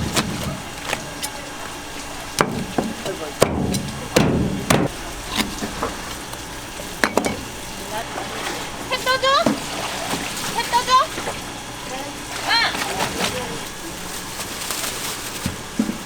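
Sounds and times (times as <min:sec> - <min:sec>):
knife chopping on wooden board: 0:02.4 - 0:05.5.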